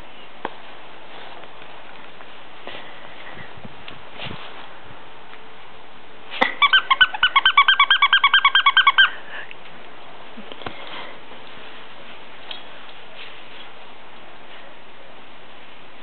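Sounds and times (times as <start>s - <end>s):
bird calling squeaky notes: 6.6s - 9.2s.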